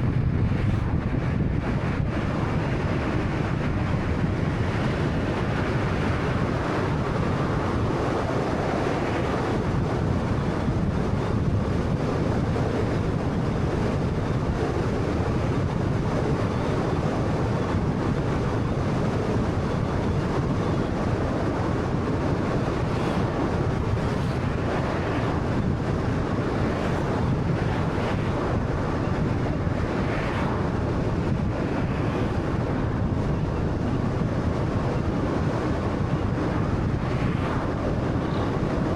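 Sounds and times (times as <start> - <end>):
wind noise: 0.0 - 38.9.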